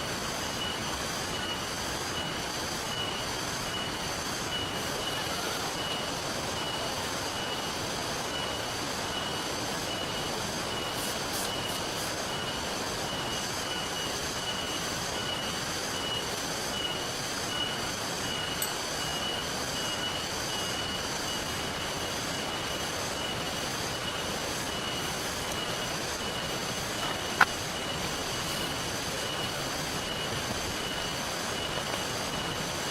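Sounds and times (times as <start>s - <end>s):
rain and river water hissing: 0.0s - 32.9s
high-pitched pulsing tone: 0.3s - 32.9s.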